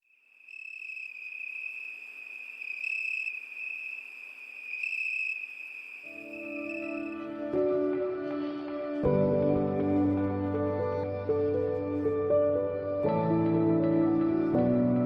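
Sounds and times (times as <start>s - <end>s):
high-pitched insect trill: 0.0s - 7.3s
soft music with low notes: 6.2s - 15.0s.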